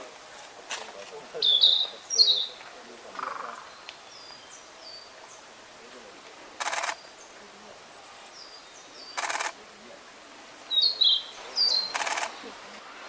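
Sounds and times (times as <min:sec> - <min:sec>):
camera shutter burst: 0:06.6 - 0:07.0, 0:09.2 - 0:09.6, 0:11.8 - 0:12.4.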